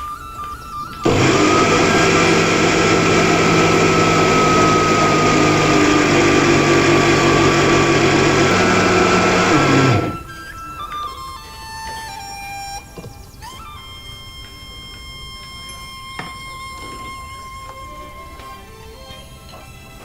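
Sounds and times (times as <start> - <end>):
electric motor whirring: 1.0 - 10.3.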